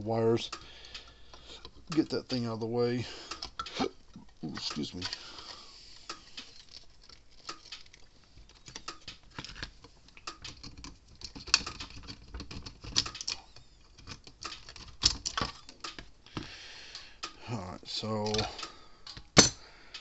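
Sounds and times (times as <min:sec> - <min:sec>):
light clicks and rattles of parts: 0:00.1 - 0:20.0.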